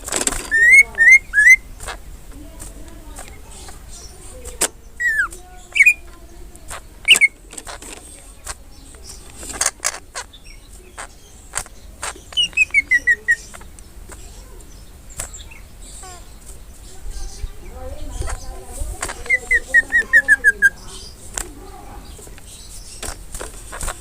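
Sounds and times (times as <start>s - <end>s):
sharp clicks: 0.0s - 16.6s, 18.2s - 21.6s, 22.2s - 24.0s
bird singing whistles and chirps: 0.4s - 2.0s, 3.2s - 7.4s, 10.3s - 21.2s.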